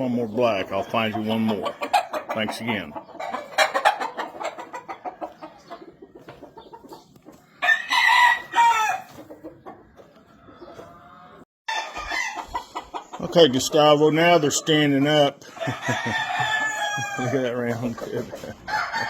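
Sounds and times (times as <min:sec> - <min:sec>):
chickens clucking: 0:00.0 - 0:19.0
rooster crowing: 0:07.6 - 0:09.1, 0:15.6 - 0:17.4, 0:18.7 - 0:19.0.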